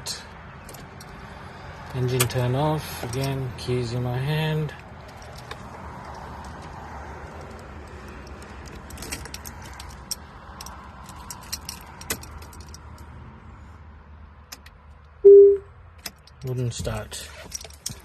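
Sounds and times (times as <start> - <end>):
electronic beep: 15.2 - 15.7.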